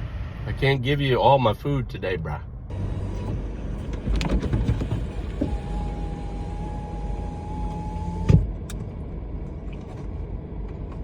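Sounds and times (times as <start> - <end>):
car cabin rumble: 2.7 - 11.0.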